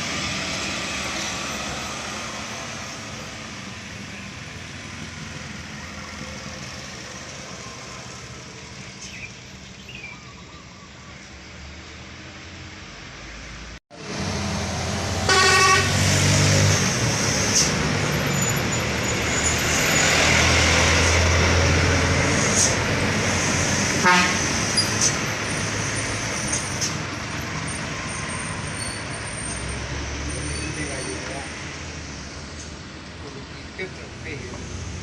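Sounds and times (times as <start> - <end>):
road noise: 0.0 - 35.0
truck engines humming: 0.0 - 35.0
vehicle horn: 15.2 - 16.0, 24.0 - 24.5.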